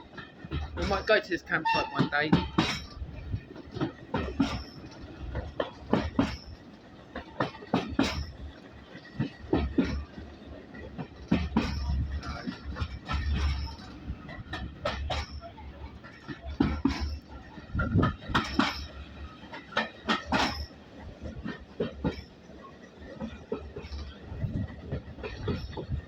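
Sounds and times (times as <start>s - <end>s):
train low rumble: 0.0s - 26.0s
train wheels clacking on track: 0.0s - 26.0s.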